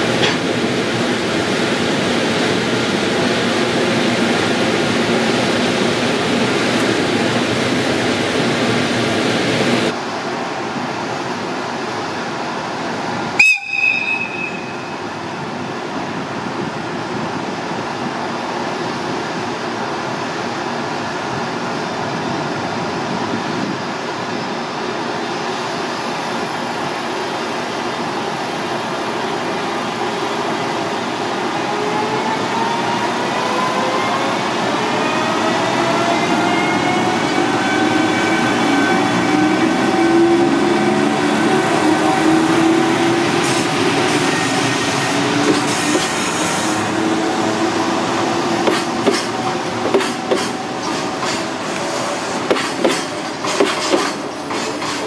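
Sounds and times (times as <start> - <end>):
electric locomotive running: 0.0 - 55.0
train wagons rolling past: 40.7 - 55.0.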